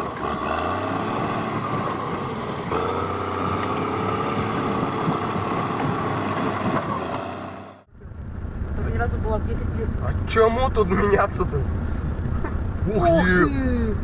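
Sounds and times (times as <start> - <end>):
bulldozer diesel engine running: 0.0 - 10.2.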